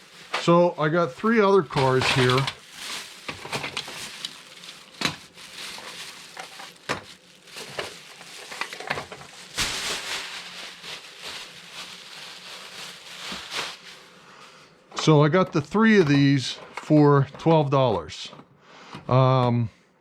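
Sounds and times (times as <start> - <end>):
packaging rustling: 0.0 - 14.6.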